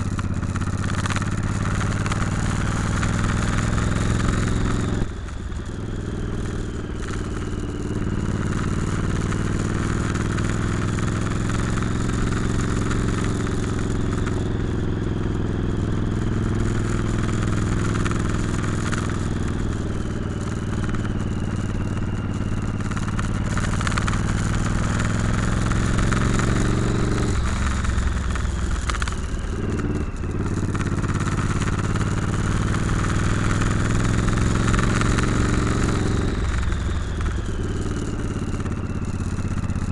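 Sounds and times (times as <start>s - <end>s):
motorcycle engine running: 0.0s - 39.9s
steady rushing noise: 15.2s - 39.9s.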